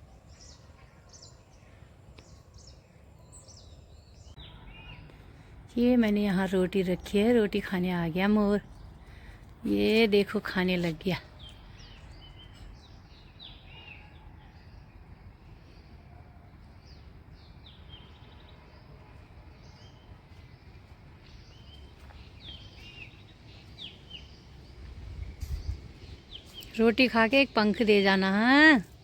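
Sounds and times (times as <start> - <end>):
small birds chirping: 0.0 - 16.0, 16.6 - 29.0
steady low rumble: 24.4 - 26.6.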